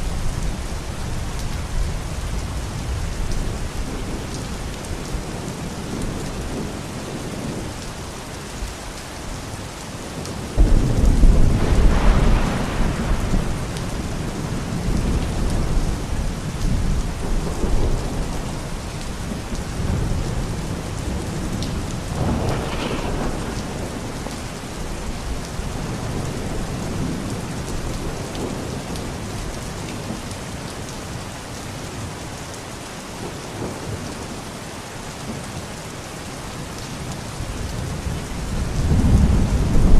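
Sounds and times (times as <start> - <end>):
steady rain falling: 0.0 - 39.9
thunder rumbling: 10.2 - 30.1, 37.5 - 39.9.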